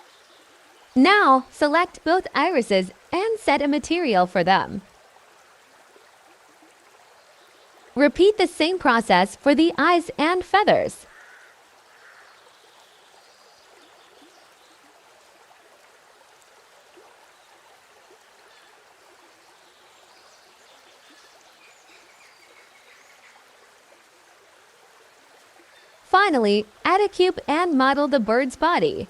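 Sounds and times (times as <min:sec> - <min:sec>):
faint steady hiss: 0:00.0 - 0:29.0.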